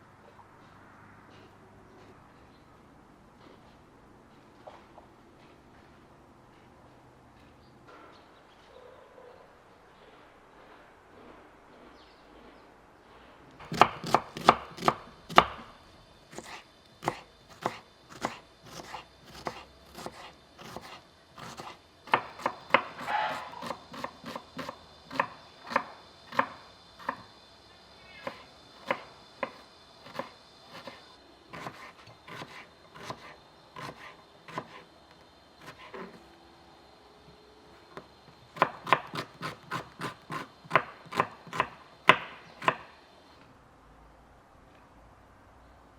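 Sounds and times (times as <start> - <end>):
knife chopping on cutting board: 13.6 - 15.6, 16.3 - 27.2, 31.6 - 34.8, 38.6 - 42.8.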